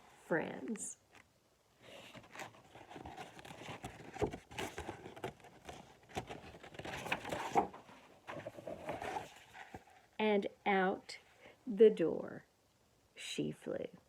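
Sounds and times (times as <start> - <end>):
paper pages rustling: 1.1 - 10.2.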